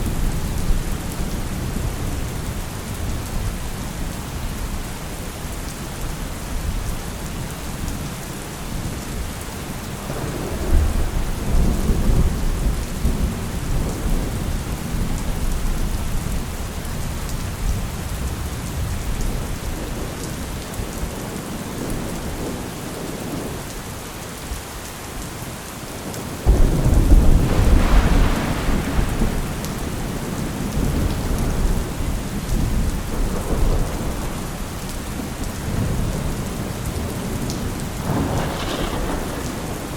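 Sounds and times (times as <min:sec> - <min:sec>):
steady rain: 0:00.0 - 0:39.9
rolling thunder: 0:10.0 - 0:16.4, 0:26.4 - 0:39.9
sharp thunderclap: 0:26.5 - 0:34.3, 0:38.0 - 0:39.9.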